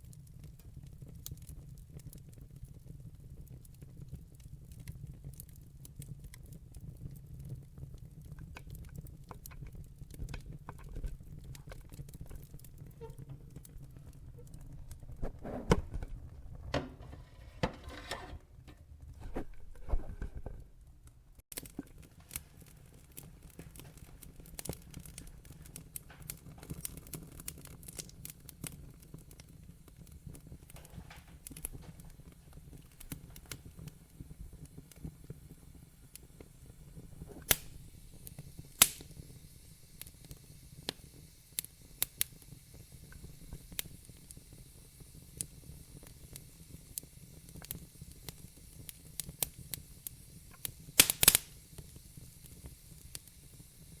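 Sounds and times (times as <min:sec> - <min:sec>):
wood fire crackling: 0:00.0 - 0:54.0
fire hissing: 0:21.6 - 0:54.0.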